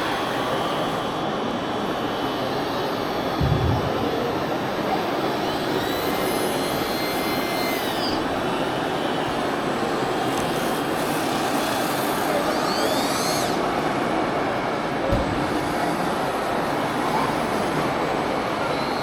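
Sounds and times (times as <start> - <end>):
thin motor whines: 0.0 - 19.0
steady noisy rush: 2.8 - 6.2
small electric motors running: 4.1 - 14.3.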